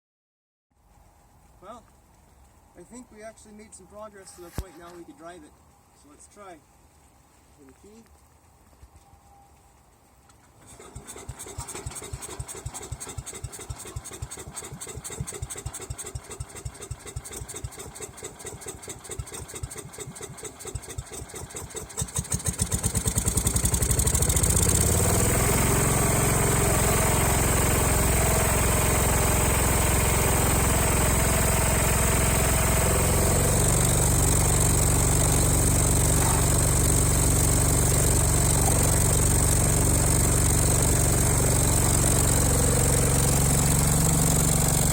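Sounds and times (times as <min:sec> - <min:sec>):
engine cranking with starter: 0:10.6 - 0:44.9
engine running: 0:10.6 - 0:44.9.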